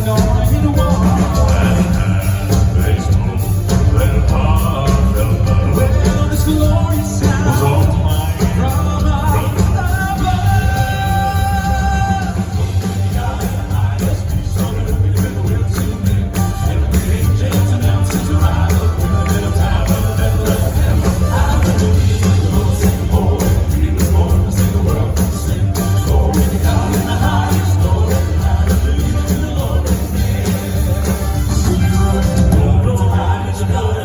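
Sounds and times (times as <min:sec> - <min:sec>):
live band with heavy bass: 0:00.0 - 0:34.0
male vocal quartet singing: 0:00.0 - 0:34.0.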